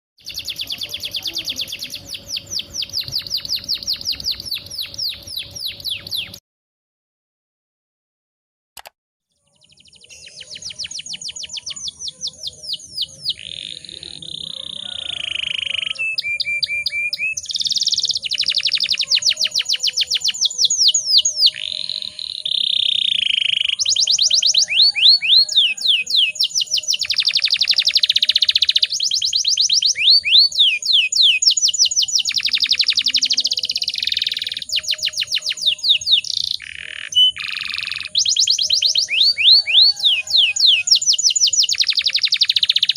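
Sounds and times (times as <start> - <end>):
canary singing trills: 0.2 - 6.4, 9.3 - 42.9.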